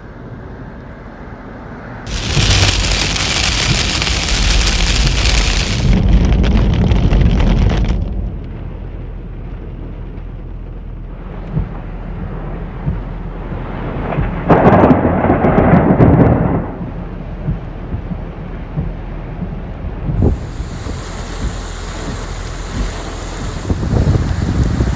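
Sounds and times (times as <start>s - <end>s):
heavy rain falling: 2.1s - 8.4s, 20.2s - 24.9s
thunder rumbling: 2.1s - 9.1s, 11.6s - 24.9s.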